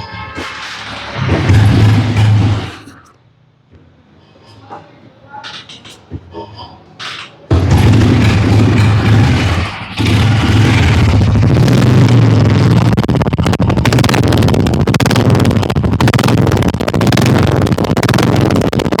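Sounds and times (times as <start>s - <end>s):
motorcycle engine running: 7.5s - 19.0s.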